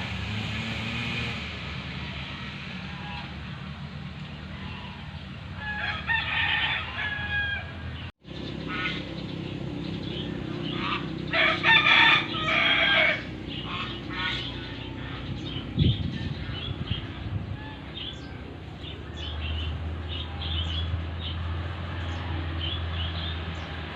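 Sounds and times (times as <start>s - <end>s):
rooster crowing: 2.2s - 3.4s, 4.5s - 8.0s, 11.3s - 13.4s
steady low rumble: 7.6s - 21.3s
chickens clucking: 10.0s - 19.1s.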